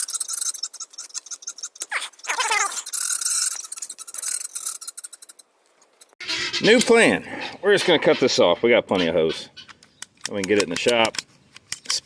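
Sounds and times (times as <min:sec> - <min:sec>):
hose handling clicks and scrapes: 0:00.0 - 0:07.0, 0:09.7 - 0:12.0
poultry squawking: 0:00.6 - 0:04.3, 0:06.2 - 0:09.8.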